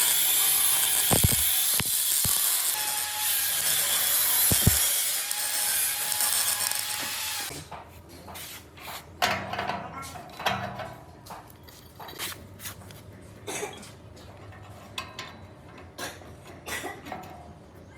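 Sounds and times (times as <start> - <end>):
power tool grinding: 0.0 - 7.5.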